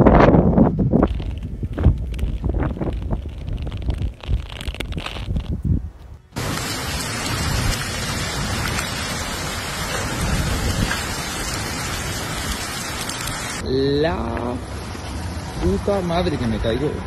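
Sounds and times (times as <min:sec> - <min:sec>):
wind buffeting microphone: 0:00.0 - 0:13.6
heavy rain downpour: 0:06.4 - 0:16.4.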